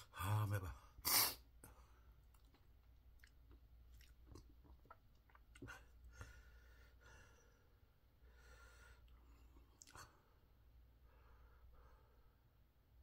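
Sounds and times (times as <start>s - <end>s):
chewing clicks and mouth noises: 2.2s - 5.8s, 9.7s - 10.1s.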